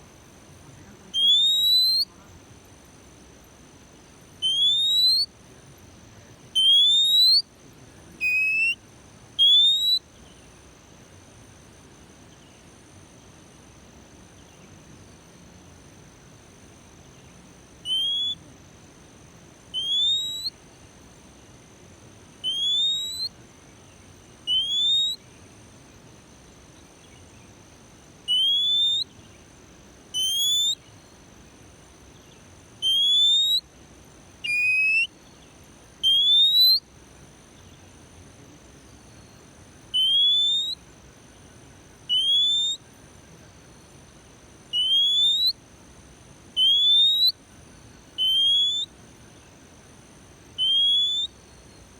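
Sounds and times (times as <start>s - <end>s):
bird whistling rising note: 48.2s - 48.9s, 50.6s - 51.3s.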